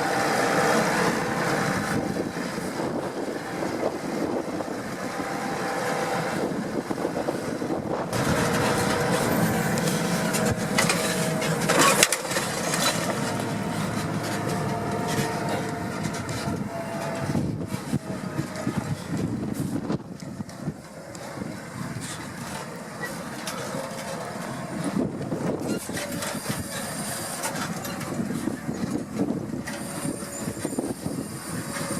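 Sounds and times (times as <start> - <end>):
tractor diesel engine running: 0.0 - 31.9
rake clatter: 8.1 - 17.3.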